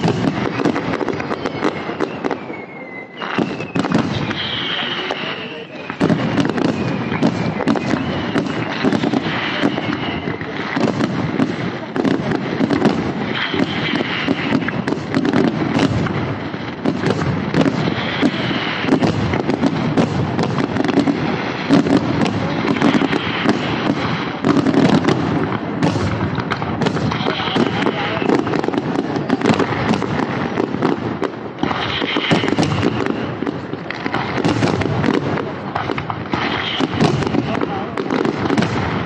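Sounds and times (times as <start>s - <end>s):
fireworks crackling: 0.0s - 39.0s
fireworks whistles: 0.0s - 39.0s
fireworks shell bursts: 31.6s - 33.1s, 36.4s - 37.6s.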